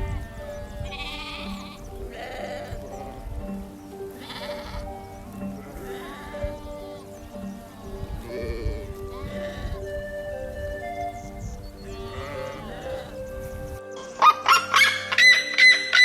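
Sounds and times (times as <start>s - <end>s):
quavering bleats: 0.0s - 4.9s, 5.5s - 9.9s, 11.8s - 13.2s
background music: 0.0s - 16.0s.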